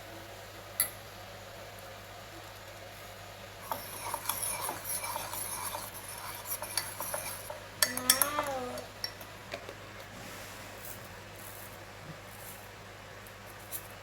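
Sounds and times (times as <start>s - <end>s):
spoon clinking against a mug: 3.6s - 9.3s.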